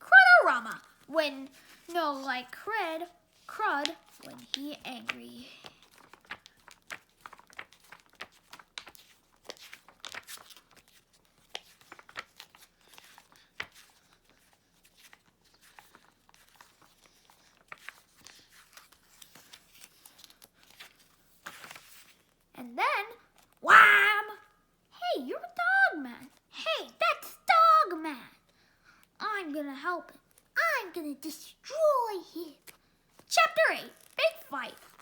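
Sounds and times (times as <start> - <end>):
paper book rustling and crinkling: 0.7 - 22.5, 23.1 - 23.6, 32.5 - 35.0
pages turning: 0.8 - 2.3, 3.3 - 22.4, 32.6 - 35.0.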